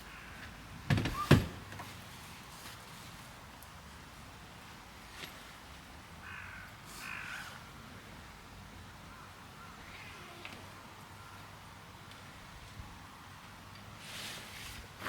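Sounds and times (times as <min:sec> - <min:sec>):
crow cawing: 0:00.0 - 0:00.6, 0:06.2 - 0:07.6, 0:09.1 - 0:10.3.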